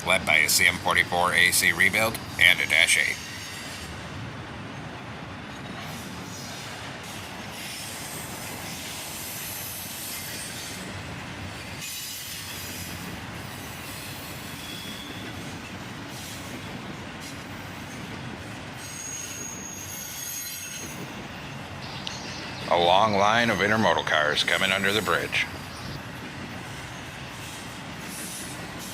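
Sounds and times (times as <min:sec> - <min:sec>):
train cars rolling on rails: 0:00.0 - 0:28.9
high wheel squeal: 0:11.8 - 0:16.6, 0:18.8 - 0:22.7.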